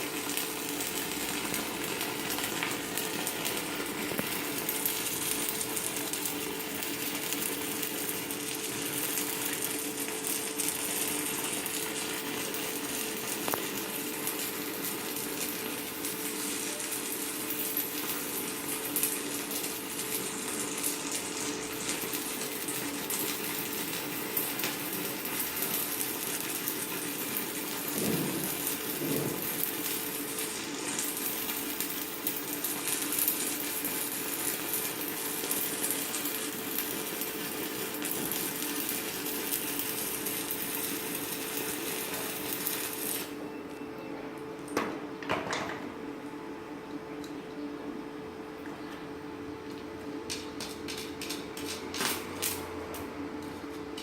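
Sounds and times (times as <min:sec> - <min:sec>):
welder steady hum: 0:00.0 - 0:54.0
welding arc crackling sizzle: 0:00.0 - 0:54.0.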